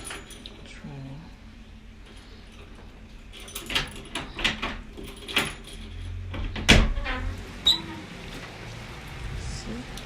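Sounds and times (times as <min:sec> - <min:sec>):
sharp rattling clatters: 0:02.0 - 0:06.8.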